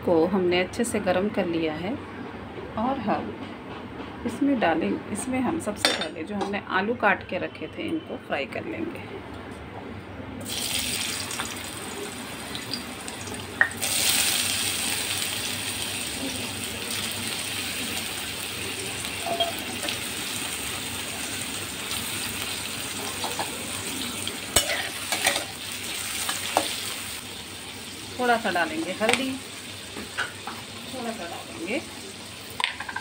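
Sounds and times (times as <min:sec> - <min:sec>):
potato sticks sizzling in oil: 0:10.4 - 0:32.9.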